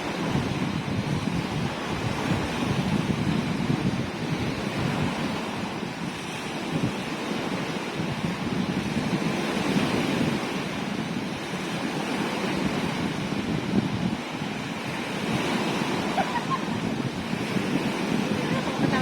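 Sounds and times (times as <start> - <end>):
sea waves surf: 0.0 - 19.0
wind buffeting microphone: 0.0 - 19.0.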